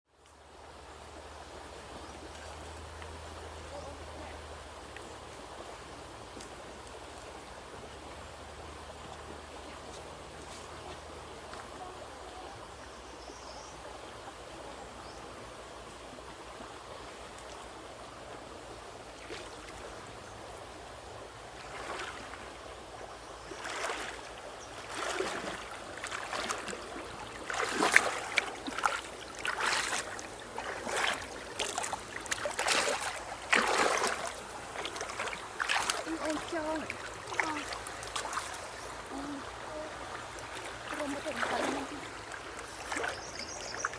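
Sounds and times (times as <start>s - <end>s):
river water flowing: 0.1s - 43.9s
water splashing: 21.4s - 43.9s.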